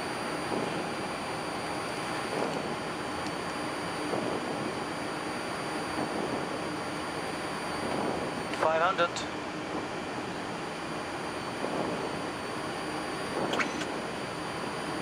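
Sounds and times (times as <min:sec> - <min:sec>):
faint high whine: 0:00.0 - 0:15.0
rush of air and engine noise: 0:00.0 - 0:15.0.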